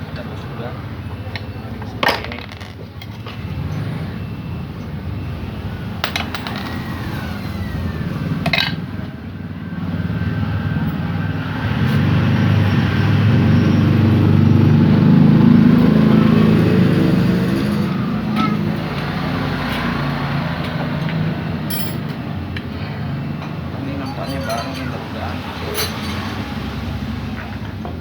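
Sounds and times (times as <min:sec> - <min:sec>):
motorcycle engine running: 0:07.4 - 0:23.8
metallic tool clinks: 0:21.7 - 0:22.1.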